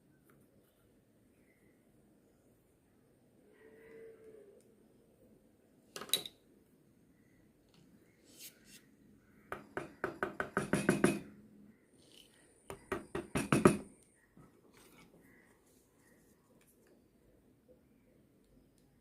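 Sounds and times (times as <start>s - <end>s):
tool tapping on wood: 9.5s - 11.3s, 12.7s - 13.9s.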